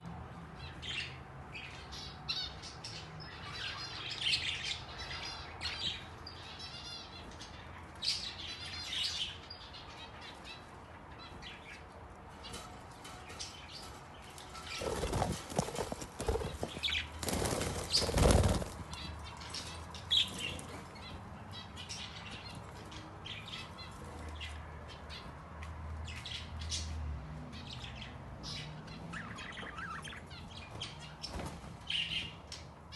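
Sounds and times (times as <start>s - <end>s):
wings flapping: 14.6s - 19.0s
budgerigars chirping: 27.8s - 32.7s.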